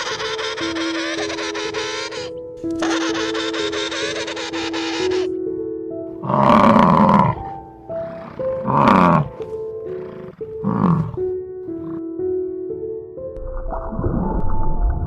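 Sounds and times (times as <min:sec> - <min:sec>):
animal calling loudly: 0:00.0 - 0:05.4, 0:06.2 - 0:11.2
background music: 0:00.0 - 0:15.0.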